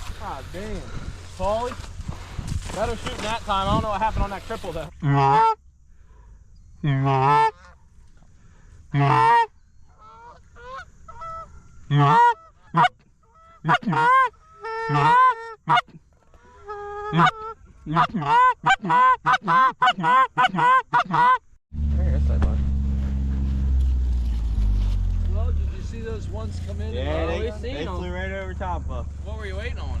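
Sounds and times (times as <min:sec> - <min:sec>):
geese honking: 0:04.6 - 0:05.6, 0:06.8 - 0:07.9, 0:08.9 - 0:21.4.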